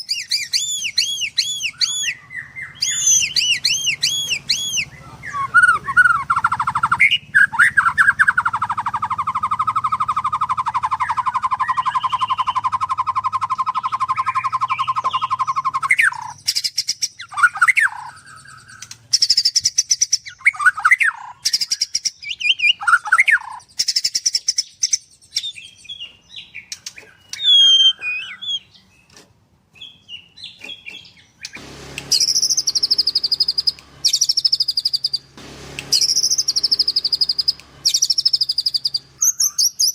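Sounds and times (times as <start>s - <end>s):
short whistled bird phrases: 0.0s - 8.3s, 27.1s - 28.7s
fast machine-gun-like bird trill: 0.0s - 24.8s, 31.4s - 39.9s
songbird singing: 0.0s - 39.9s.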